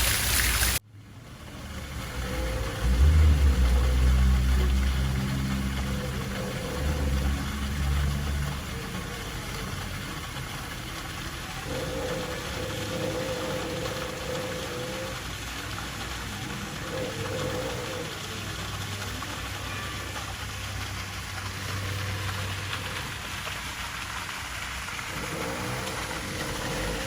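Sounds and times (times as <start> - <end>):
steady hiss: 0.0 - 0.8, 1.4 - 27.0
engine humming: 0.0 - 27.0.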